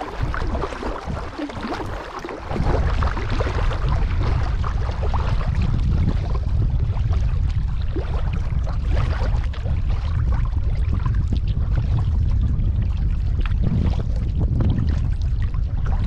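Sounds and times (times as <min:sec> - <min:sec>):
water splashing from paddling: 0:00.0 - 0:11.9
wind on microphone: 0:00.0 - 0:16.0.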